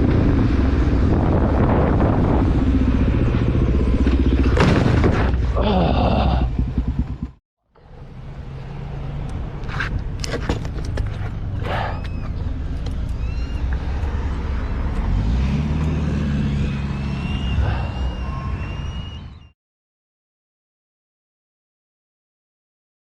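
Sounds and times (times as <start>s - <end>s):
car engine and road hum: 6.5s - 19.5s.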